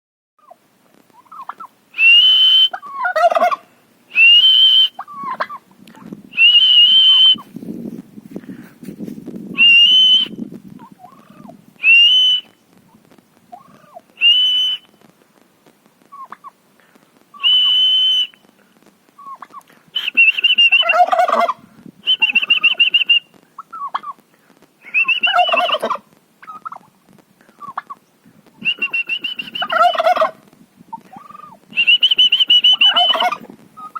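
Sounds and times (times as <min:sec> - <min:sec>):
turkeys gobbling: 0:00.4 - 0:03.8, 0:04.4 - 0:07.4, 0:10.8 - 0:14.2, 0:16.1 - 0:16.6, 0:19.2 - 0:21.6, 0:22.2 - 0:24.2, 0:24.9 - 0:33.9
loud high whistle: 0:02.0 - 0:02.8, 0:04.2 - 0:05.0, 0:06.4 - 0:07.4, 0:09.6 - 0:10.4, 0:11.8 - 0:12.5, 0:14.2 - 0:14.9, 0:17.4 - 0:18.4.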